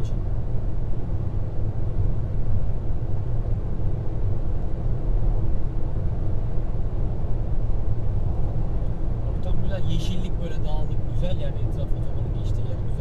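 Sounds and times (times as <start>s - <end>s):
engine and road noise in car: 0.0s - 13.0s.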